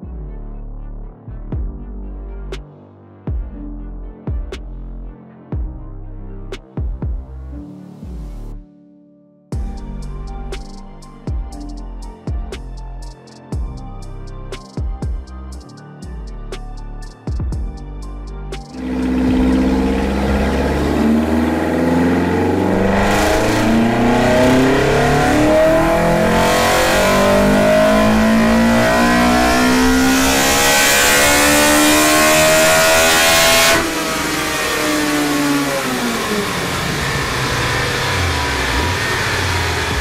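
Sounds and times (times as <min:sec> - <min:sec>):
car engine revving at full throttle: 0:18.8 - 0:40.0.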